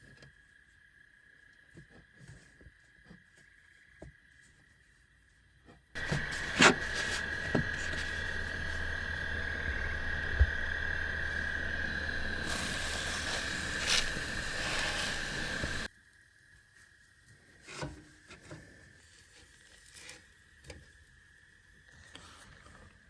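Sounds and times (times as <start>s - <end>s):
thin high whine: 6.0s - 15.9s
cooking hiss on stove: 6.0s - 23.0s.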